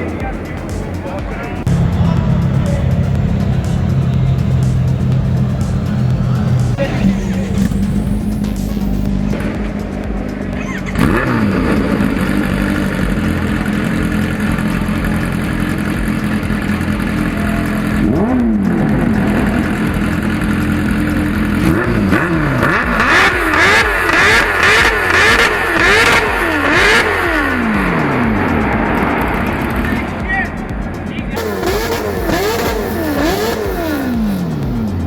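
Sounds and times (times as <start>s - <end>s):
engine idling and revving: 0.0s - 35.0s.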